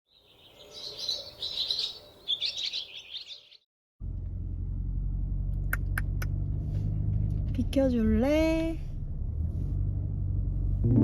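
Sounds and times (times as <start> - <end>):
small birds chirping: 0.1 - 3.7.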